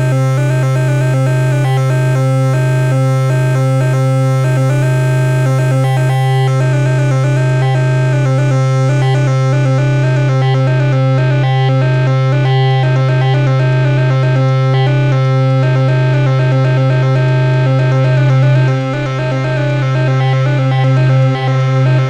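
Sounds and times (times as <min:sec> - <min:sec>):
fast sequenced synth notes: 0:00.0 - 0:22.0
low synth drone: 0:00.0 - 0:22.0.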